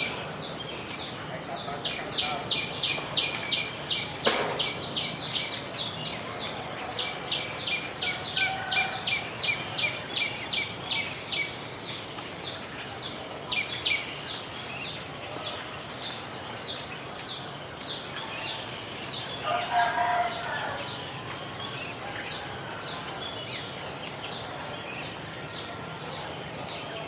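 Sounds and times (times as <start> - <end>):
sharp knock: 4.2 - 4.8.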